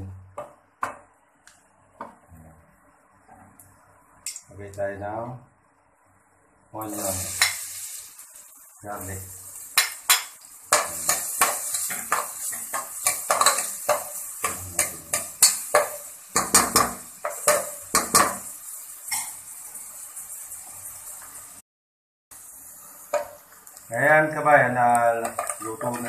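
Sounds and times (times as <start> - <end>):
onion sizzling in oil: 6.3 - 21.6, 22.3 - 26.0
utensil scraping and clinking on pan: 9.8 - 18.4, 25.2 - 26.0.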